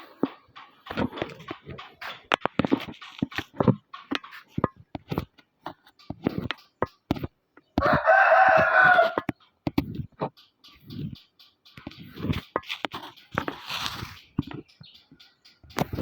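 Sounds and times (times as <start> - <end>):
sharp clicks and knocks: 0.0 - 16.0
rooster crowing: 7.8 - 9.3.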